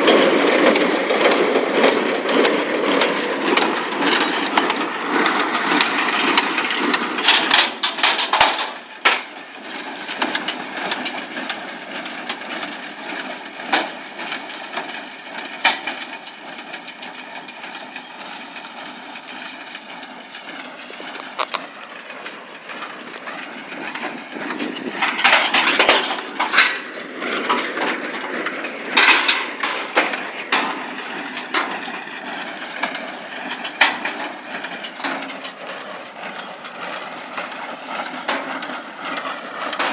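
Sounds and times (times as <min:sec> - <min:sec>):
cracking and knocking of packed hay: 0:00.0 - 0:39.9
hay baler clattering: 0:00.0 - 0:39.9.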